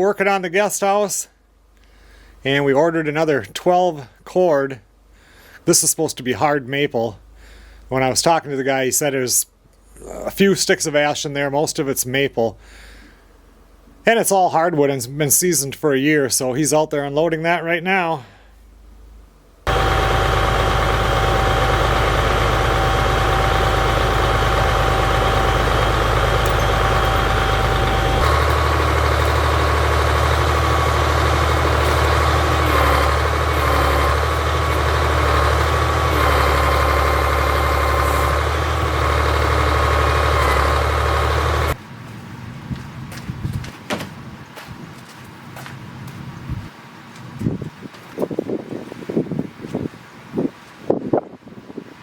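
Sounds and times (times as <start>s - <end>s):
truck engine running: 19.2s - 43.3s
wavering whine: 19.7s - 41.8s.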